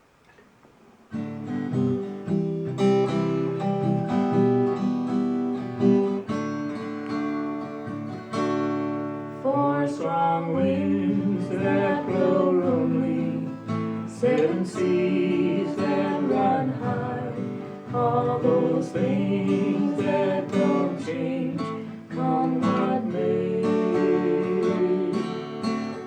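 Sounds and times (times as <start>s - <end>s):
acoustic guitar strumming: 1.1s - 26.0s
person singing: 9.4s - 26.0s.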